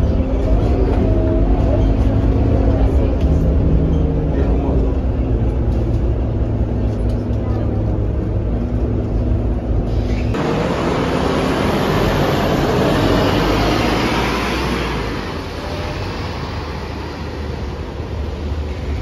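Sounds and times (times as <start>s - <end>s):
bus diesel engine idling: 0.0s - 19.0s
loud rushing noise: 9.8s - 19.0s.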